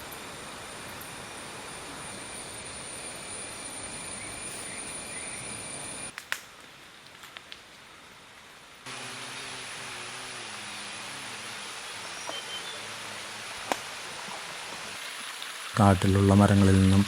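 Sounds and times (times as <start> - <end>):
high-pitched insect drone: 0.0 - 6.1, 8.9 - 13.4
rushing hiss: 8.9 - 17.0.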